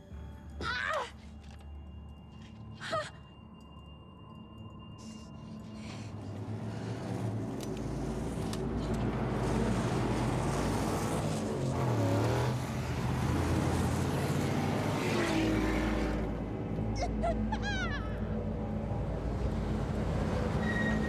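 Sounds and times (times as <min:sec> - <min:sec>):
car engines revving: 0:06.3 - 0:16.8.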